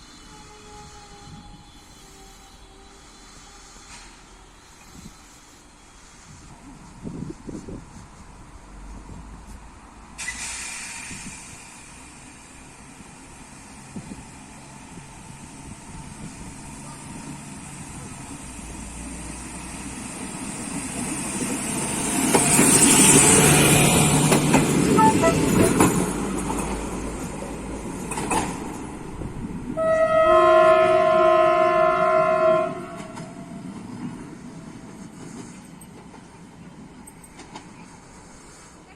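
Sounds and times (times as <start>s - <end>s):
train running past: 0.0s - 38.9s
train horn blast: 24.9s - 26.0s, 29.8s - 33.6s.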